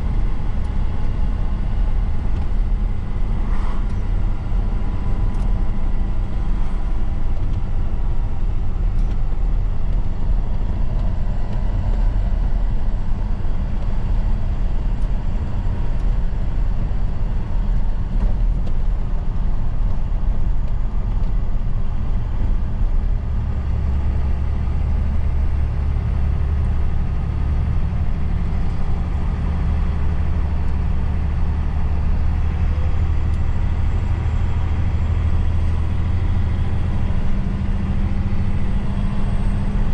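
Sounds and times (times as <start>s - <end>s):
road noise: 0.0s - 39.9s
truck engine running: 0.0s - 39.9s.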